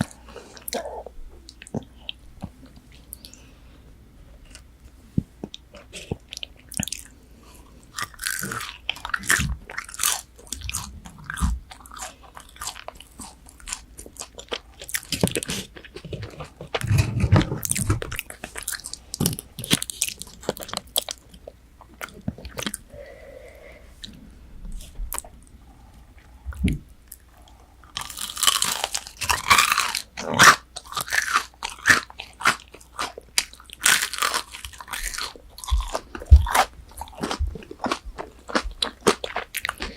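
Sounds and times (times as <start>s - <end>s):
crunchy chewing: 5.7s - 22.9s, 25.9s - 39.9s.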